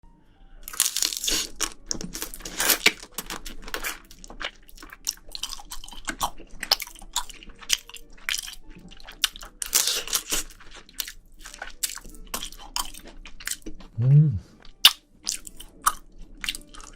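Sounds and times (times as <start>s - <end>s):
biting and chewing: 0.7s - 16.9s
wet mouth sounds: 13.9s - 15.0s.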